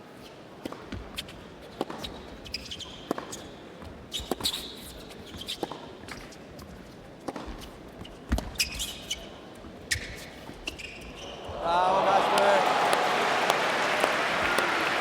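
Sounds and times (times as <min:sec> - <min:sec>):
sneakers squeaking: 0:07.4 - 0:11.7.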